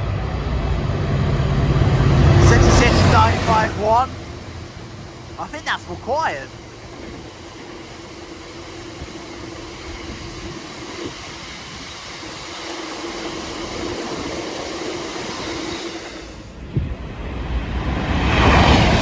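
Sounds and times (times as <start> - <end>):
constant hum: 0.0 - 18.0
freight train rumbling past: 0.0 - 19.0.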